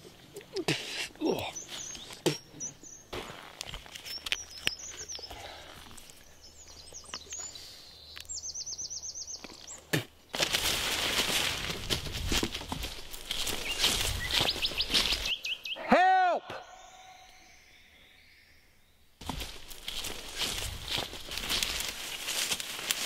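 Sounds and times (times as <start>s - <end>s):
forest birds chirping: 0.0s - 23.0s
dense rustling noise: 10.3s - 15.3s, 19.2s - 23.0s.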